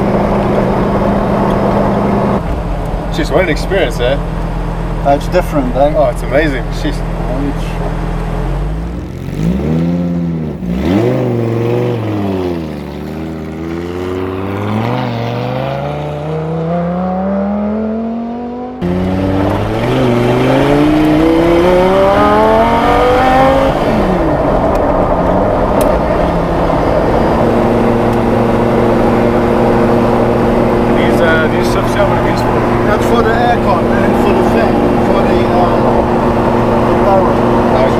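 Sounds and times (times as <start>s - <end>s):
race car engine accelerating: 0.0s - 37.9s.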